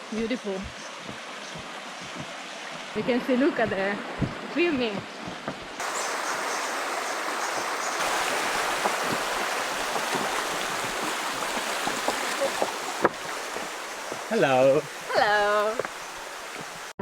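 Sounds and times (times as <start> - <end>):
river rushing: 5.8 - 17.0.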